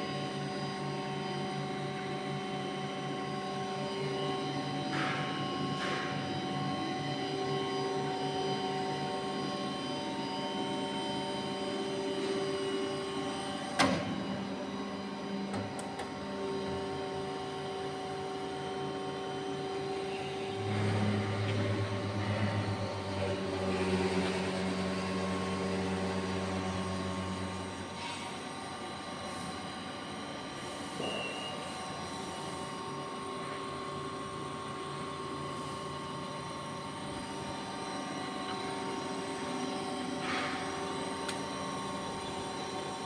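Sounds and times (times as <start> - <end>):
machine motor whine: 0.0 - 43.0
deep loud hum: 20.2 - 28.4.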